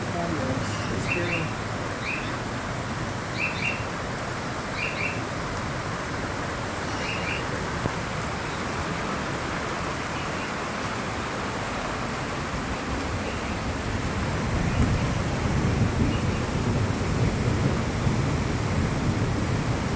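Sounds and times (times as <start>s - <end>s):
creek rushing: 0.0s - 17.1s.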